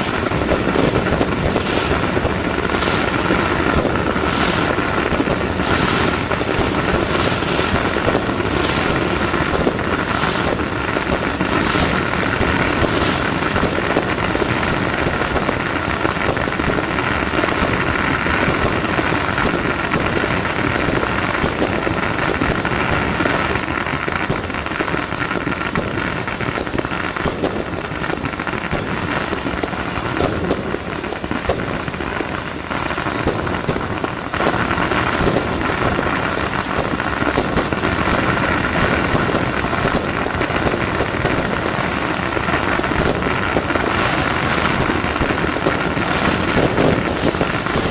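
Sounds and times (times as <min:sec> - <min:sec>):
firecrackers crackling: 0:00.0 - 0:47.9.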